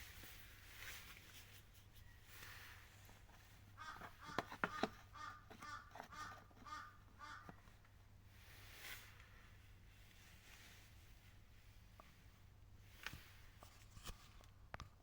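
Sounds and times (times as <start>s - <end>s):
bird harsh calls: 3.8s - 7.6s.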